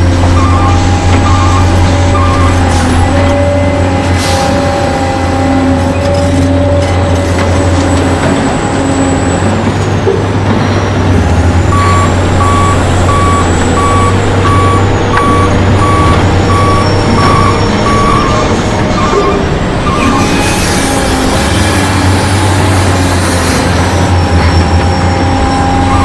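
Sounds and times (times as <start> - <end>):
toy truck reversing alarm beeping: 0.2 - 2.7, 11.7 - 20.5, 25.7 - 26.0.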